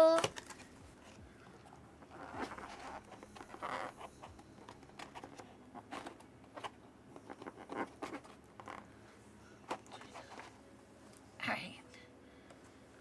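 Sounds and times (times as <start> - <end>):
card packs rustling: 0.0 - 1.2.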